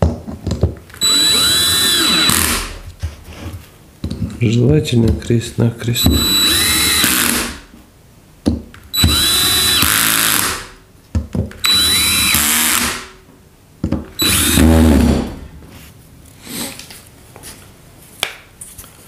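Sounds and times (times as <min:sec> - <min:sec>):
power drill whining: 0:00.9 - 0:02.8, 0:06.0 - 0:07.6, 0:09.0 - 0:10.8, 0:11.6 - 0:13.1, 0:14.2 - 0:15.5.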